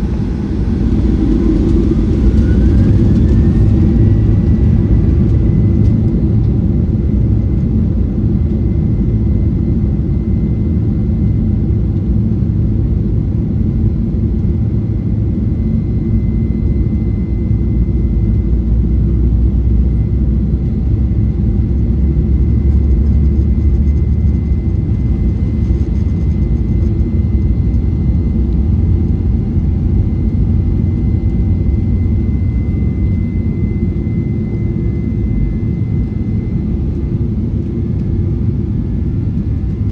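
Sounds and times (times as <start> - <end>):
airliner cabin rumble: 0.0 - 9.3, 17.0 - 39.9
jet engine whine: 0.0 - 39.9.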